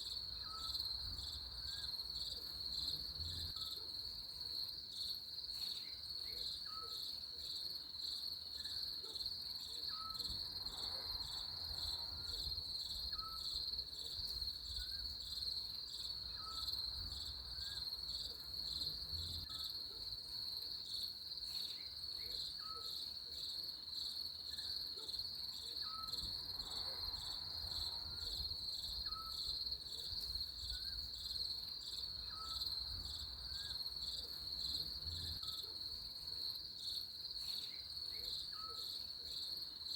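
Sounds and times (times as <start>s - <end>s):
high-pitched cricket chorus: 0.0s - 39.9s.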